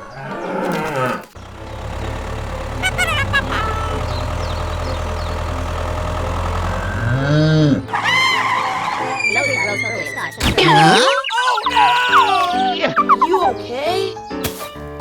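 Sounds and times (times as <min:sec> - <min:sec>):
small engine droning: 0:00.7 - 0:10.4.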